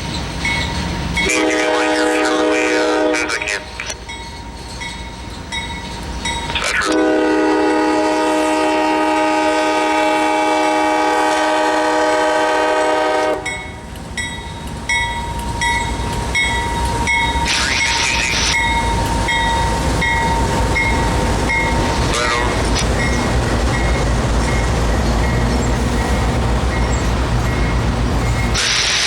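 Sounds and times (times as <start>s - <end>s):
wheels clacking on rails: 0.0s - 7.8s, 11.3s - 29.0s
locomotives rumbling past: 0.0s - 29.0s
locomotive air horn blast: 1.2s - 3.8s, 6.8s - 13.6s.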